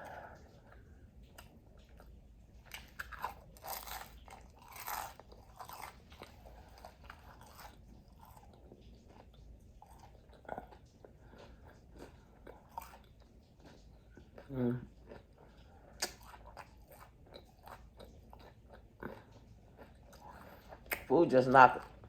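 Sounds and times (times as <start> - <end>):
crunching crispy food: 2.6 - 13.8.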